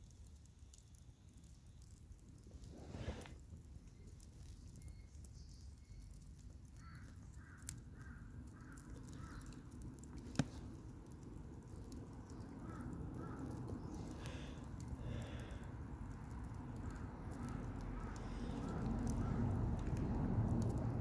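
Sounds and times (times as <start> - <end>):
crow cawing: 6.8 - 9.6, 12.6 - 15.6
low background rumble: 8.2 - 21.0.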